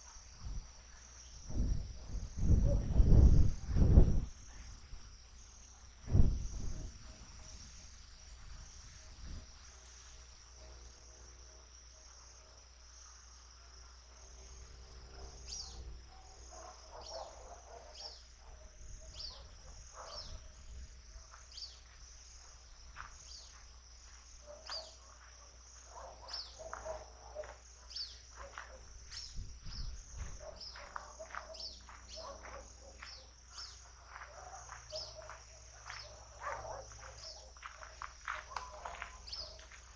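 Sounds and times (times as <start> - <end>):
high-pitched insect trill: 0.0 - 39.9
low thump: 6.0 - 7.0
birds chirping: 14.3 - 39.9.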